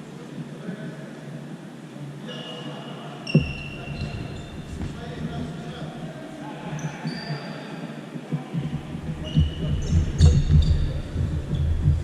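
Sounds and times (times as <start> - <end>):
high squeaks: 3.3 - 6.0
low thumps and rumble: 3.4 - 6.1, 8.6 - 12.0.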